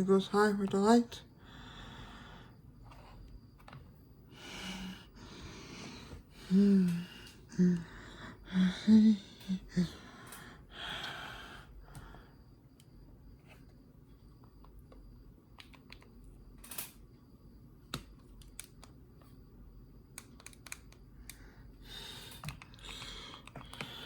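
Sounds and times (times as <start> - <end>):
person gasping and exhaling: 4.4 - 12.2.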